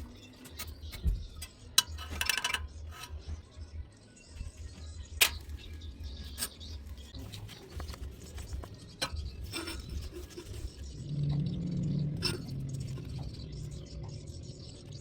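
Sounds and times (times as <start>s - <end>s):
light scraping: 6.2s - 11.0s, 12.2s - 13.4s
low rumble: 9.4s - 15.0s.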